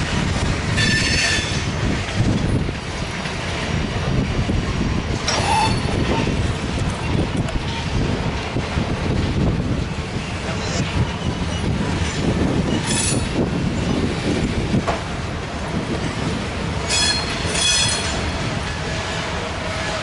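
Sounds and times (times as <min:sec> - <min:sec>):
train wheels rumbling on rail: 0:00.0 - 0:20.0
high-pitched wheel squeals: 0:05.3 - 0:05.9, 0:12.7 - 0:13.3, 0:16.9 - 0:18.2.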